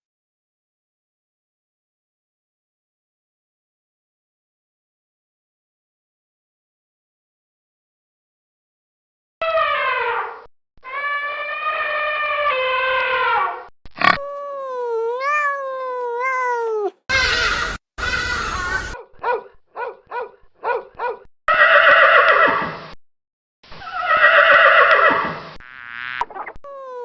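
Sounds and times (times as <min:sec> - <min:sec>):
harsh rasping animal calls: 0:14.0 - 0:19.0
long rough animal calls: 0:14.0 - 0:19.0
whinny-like animal calls: 0:14.0 - 0:19.0, 0:26.7 - 0:27.0
wavering animal call: 0:14.2 - 0:19.0.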